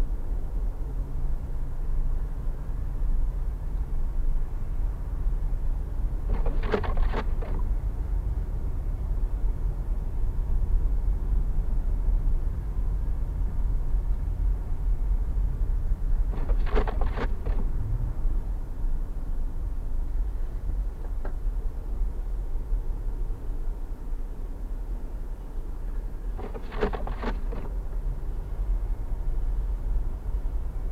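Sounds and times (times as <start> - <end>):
car road and engine rumble: 0.0 - 30.9
rapid clicks: 26.4 - 27.7.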